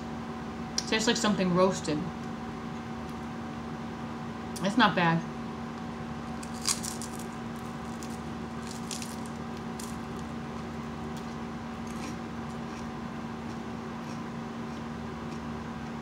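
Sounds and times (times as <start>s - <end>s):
steady low hum: 0.0s - 16.0s
chewing crunchy snack: 6.3s - 16.0s.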